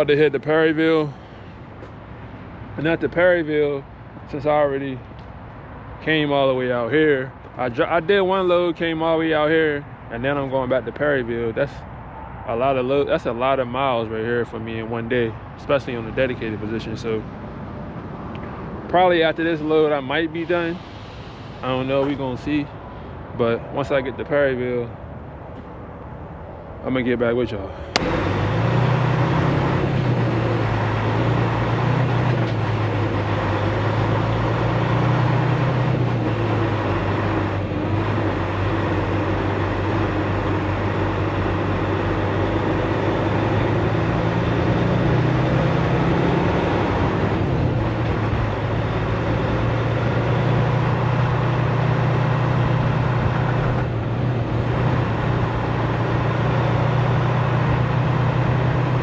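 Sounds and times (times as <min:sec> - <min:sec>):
road noise: 0:00.0 - 0:59.0
truck diesel engine running: 0:27.7 - 0:59.0.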